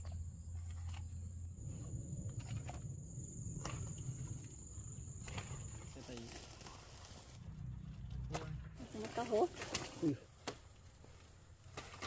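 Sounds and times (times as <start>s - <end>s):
low rumble: 0.0s - 8.9s
high-pitched insect trill: 1.1s - 6.6s.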